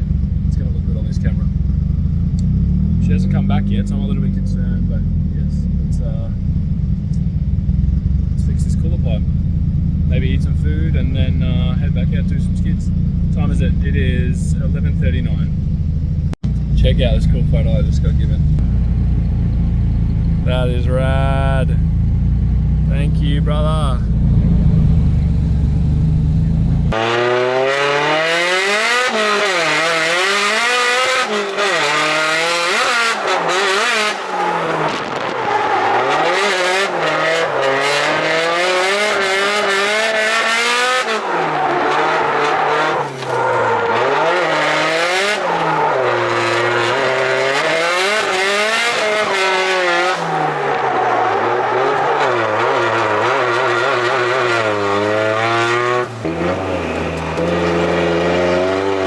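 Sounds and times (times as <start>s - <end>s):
car engine revving: 0.0s - 59.0s
tyre squeal: 27.0s - 59.0s.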